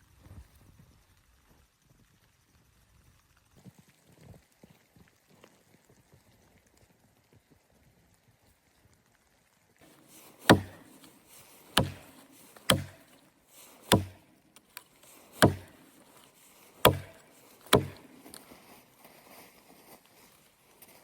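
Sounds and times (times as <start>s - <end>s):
axe chopping wood: 9.8s - 18.4s.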